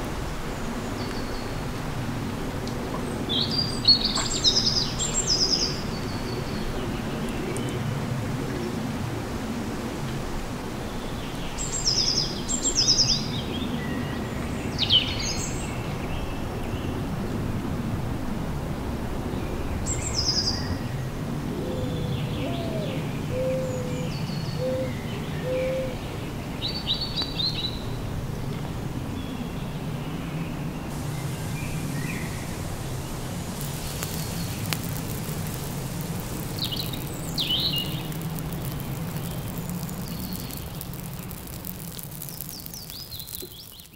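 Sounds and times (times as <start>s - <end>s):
small birds chirping: 30.9s - 43.9s.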